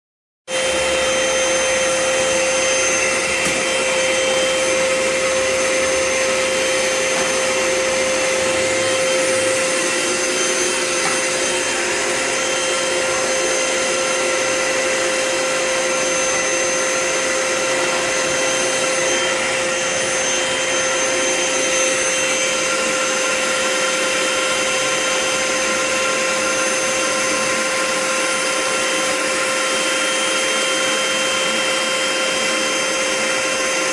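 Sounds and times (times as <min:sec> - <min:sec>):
vacuum cleaner running: 0:00.5 - 0:33.9.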